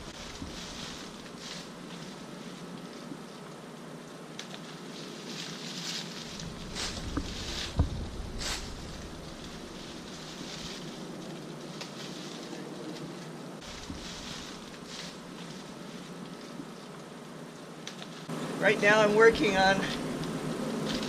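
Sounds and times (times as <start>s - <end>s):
leafy branches rustling: 0.0s - 21.0s
outdoor hiss: 0.0s - 21.0s
dull thump: 6.4s - 9.2s, 13.7s - 14.6s.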